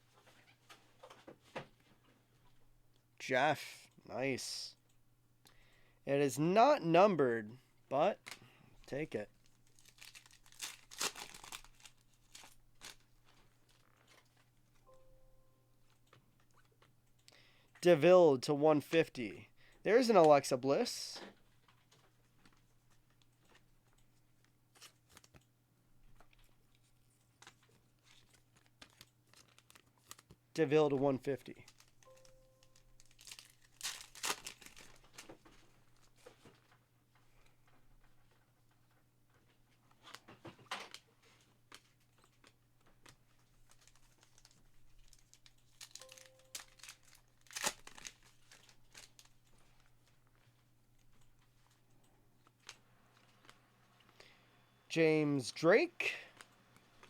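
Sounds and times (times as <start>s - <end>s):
trading cards rustling: 8.2s - 14.5s, 26.4s - 30.4s, 31.0s - 36.4s, 41.0s - 54.2s
wrapper crinkling and tearing: 9.4s - 14.3s, 27.4s - 30.4s, 31.6s - 35.5s, 41.8s - 50.0s.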